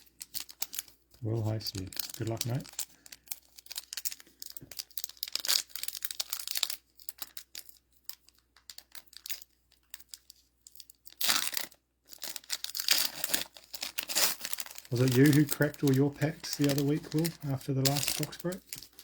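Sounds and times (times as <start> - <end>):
foil wrapper tearing and crinkling: 0.0 - 19.0
cards being handled ticks: 14.9 - 19.0.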